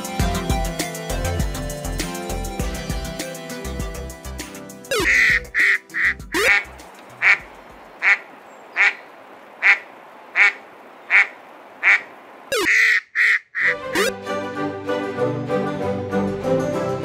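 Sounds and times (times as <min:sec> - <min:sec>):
duck quacking: 0:04.9 - 0:09.0, 0:09.6 - 0:14.1.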